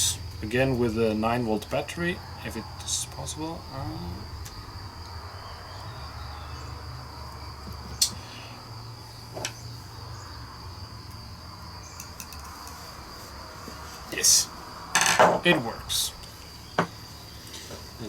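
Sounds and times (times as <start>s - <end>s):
low hum: 0.0s - 7.9s
faint high-pitched whine: 0.0s - 18.0s
small parts clicking: 12.0s - 12.8s.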